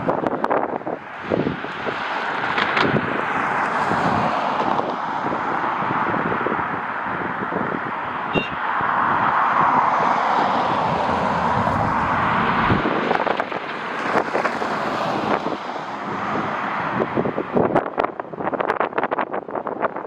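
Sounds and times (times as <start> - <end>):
wind buffeting microphone: 0.0 - 20.0
airliner jet engine rushing: 9.7 - 15.4.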